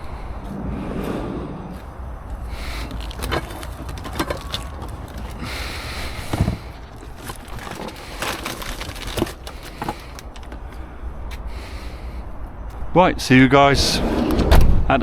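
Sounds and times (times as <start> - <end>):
steady low rumble: 0.0 - 14.1
items knocking and clattering: 2.4 - 10.8.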